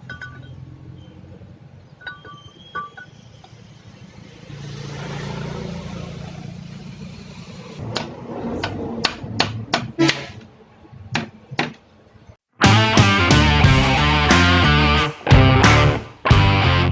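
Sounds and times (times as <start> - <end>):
sharp metallic clanks: 0.0 - 0.7
tiller engine droning: 0.0 - 9.0, 12.6 - 16.9.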